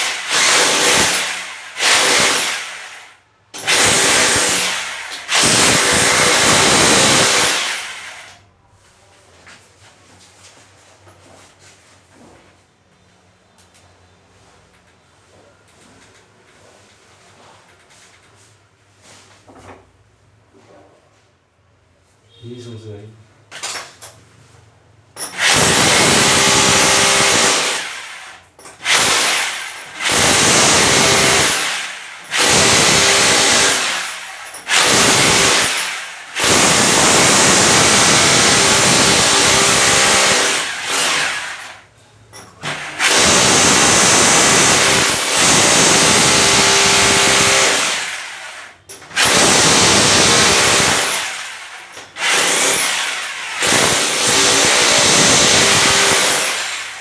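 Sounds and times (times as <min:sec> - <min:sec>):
power tool chiselling into wall: 0:00.0 - 0:08.4, 0:25.2 - 0:57.0.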